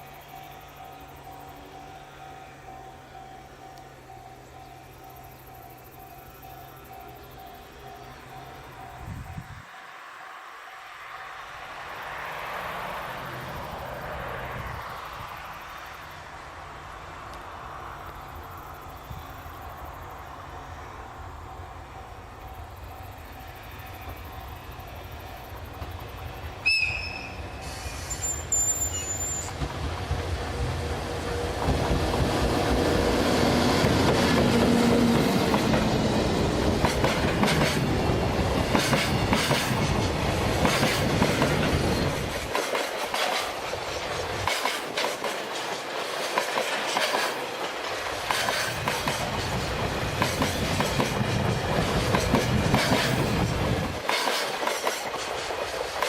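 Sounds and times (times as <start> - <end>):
freight train wheels clacking: 27.4 - 56.0.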